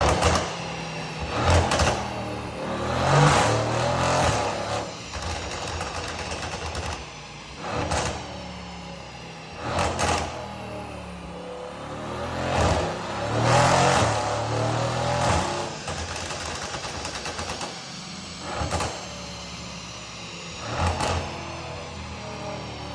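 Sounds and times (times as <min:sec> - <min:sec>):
exhaust pops and crackles: 0:00.0 - 0:00.6
car engine revving: 0:00.0 - 0:22.9.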